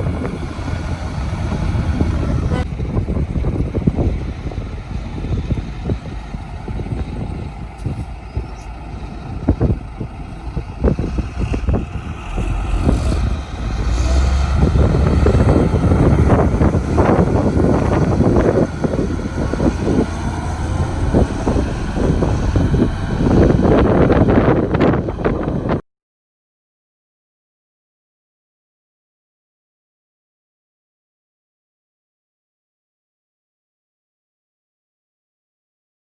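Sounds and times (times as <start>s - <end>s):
diesel construction machinery running: 0.0s - 25.8s.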